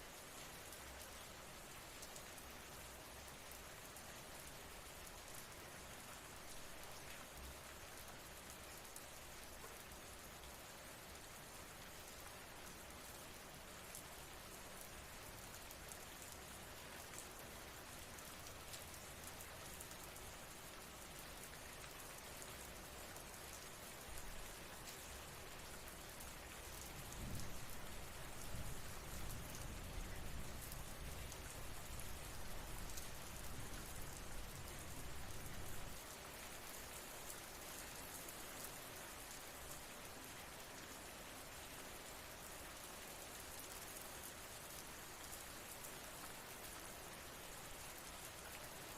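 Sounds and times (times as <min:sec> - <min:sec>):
steady rain falling: 0:00.0 - 0:48.9.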